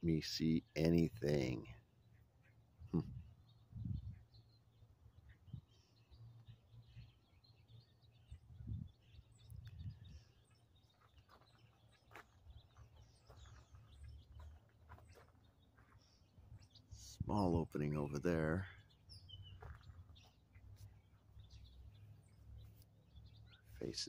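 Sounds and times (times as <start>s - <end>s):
small bird chirps: 0.7s - 24.0s.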